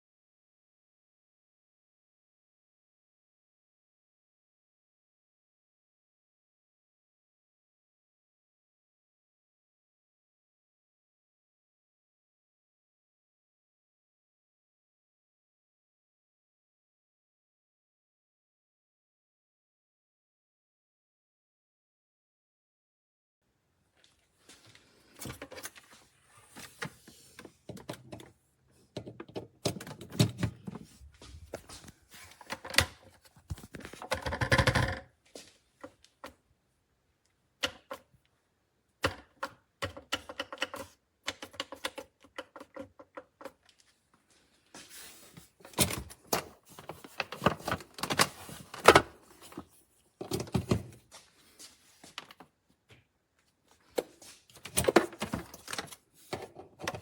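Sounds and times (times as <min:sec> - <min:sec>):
plastic parts clicking and clunking: 0:25.1 - 0:35.1, 0:39.0 - 0:43.9, 0:45.6 - 0:51.1, 0:53.8 - 0:57.0.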